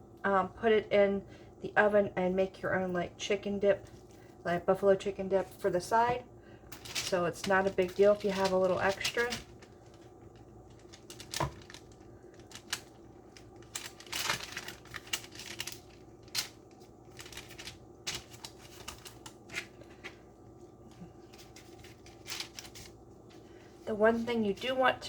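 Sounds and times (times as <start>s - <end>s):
hands handling food and wrappers: 3.8s - 23.8s.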